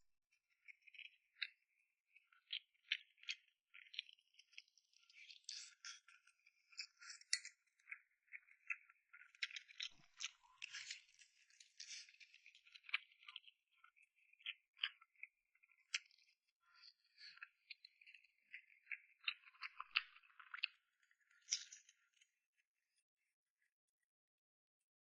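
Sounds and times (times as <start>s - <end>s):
crisp chewing and biting: 18.9s - 20.7s.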